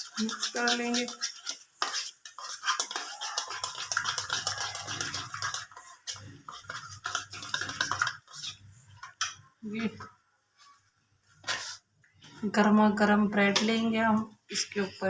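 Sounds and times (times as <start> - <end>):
spoon scraping and clinking bowl: 0.0 - 9.5, 11.4 - 11.8.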